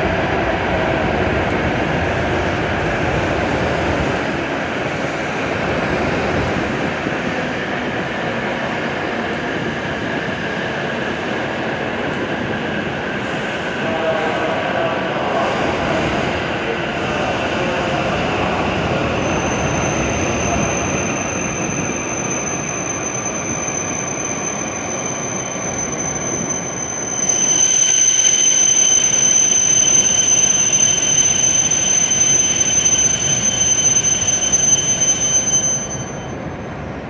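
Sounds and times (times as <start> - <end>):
train running noise: 0.0 - 37.0
train brakes squealing: 12.8 - 36.5.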